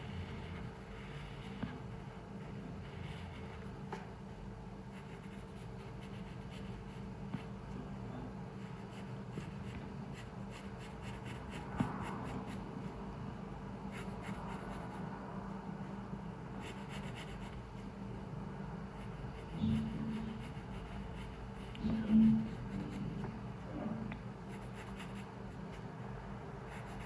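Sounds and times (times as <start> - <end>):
pencil scratching on paper: 0.0 - 3.8, 4.9 - 7.6, 8.6 - 13.0, 13.9 - 15.1, 16.5 - 18.0, 18.9 - 25.9, 26.6 - 27.0
low room hum: 0.0 - 27.0.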